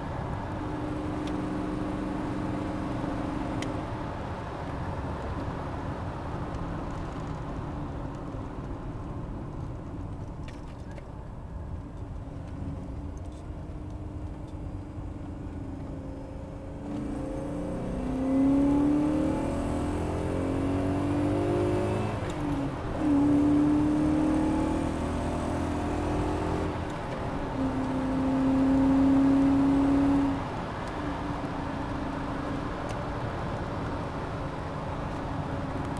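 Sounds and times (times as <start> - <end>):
car engine revving: 0.0 - 3.8, 16.4 - 30.5.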